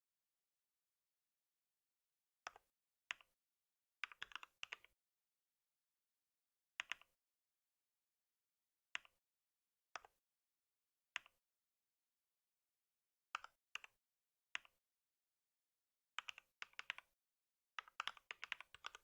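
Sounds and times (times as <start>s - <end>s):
computer keyboard keystrokes: 17.8s - 19.0s.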